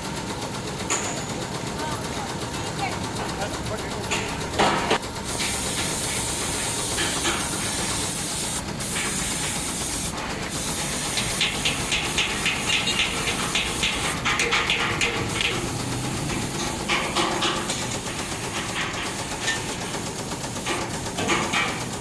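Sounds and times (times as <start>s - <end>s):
compressed air hissing: 5.0s - 14.2s, 15.2s - 22.0s
fast crackling rattle: 5.0s - 22.0s.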